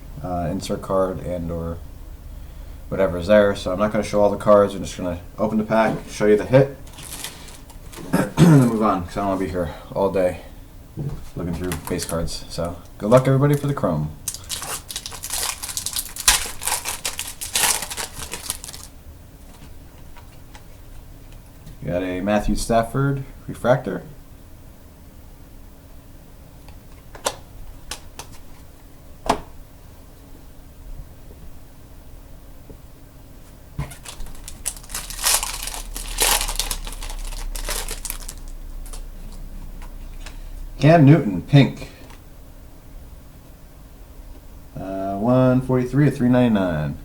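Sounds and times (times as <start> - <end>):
foil wrapper tearing and crinkling: 6.8 - 8.0, 11.7 - 12.2, 13.5 - 18.9, 33.8 - 39.1.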